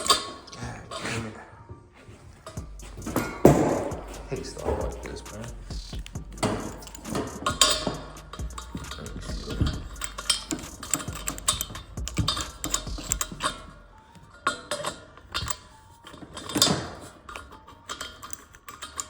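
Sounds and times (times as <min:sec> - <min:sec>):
metal fittings clicking and clanking: 0:02.4 - 0:13.8, 0:14.4 - 0:19.0.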